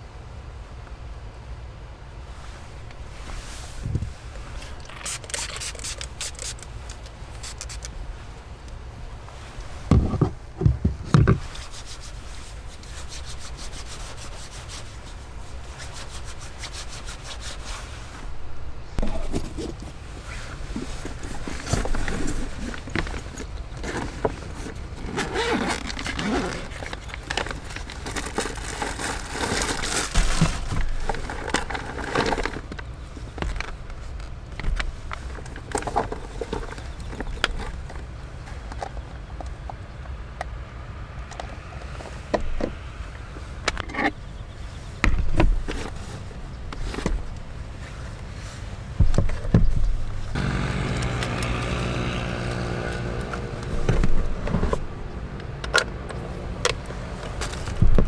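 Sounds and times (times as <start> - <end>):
objects scraping and rubbing: 3.2 - 8.0.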